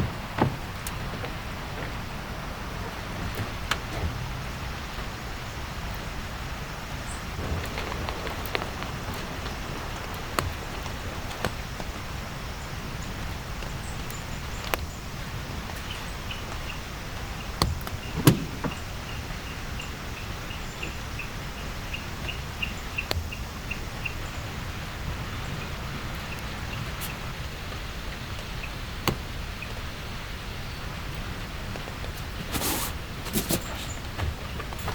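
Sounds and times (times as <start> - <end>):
heavy raindrops tapping: 0.0 - 34.9
steady rainfall: 0.0 - 34.9
loud knocks: 17.6 - 19.4.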